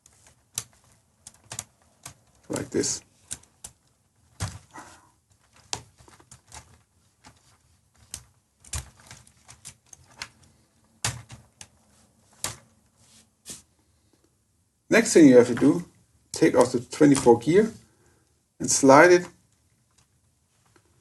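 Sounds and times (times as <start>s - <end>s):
plastic parts clicking: 0.0s - 12.7s.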